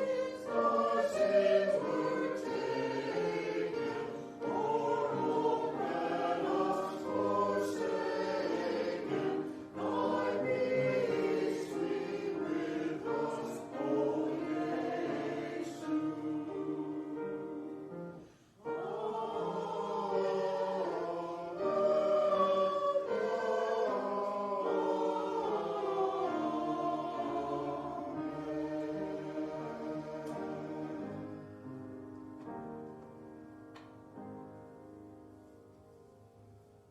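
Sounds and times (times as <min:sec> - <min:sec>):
choir singing: 0:00.0 - 0:32.5.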